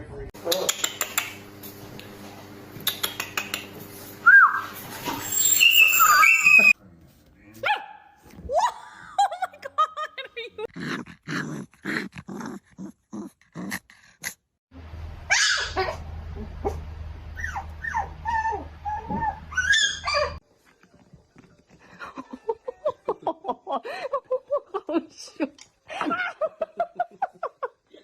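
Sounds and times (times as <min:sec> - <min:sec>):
puppies whining and yipping: 0:04.3 - 0:06.8, 0:15.3 - 0:16.0, 0:17.4 - 0:20.4
steady low hum: 0:14.8 - 0:19.7.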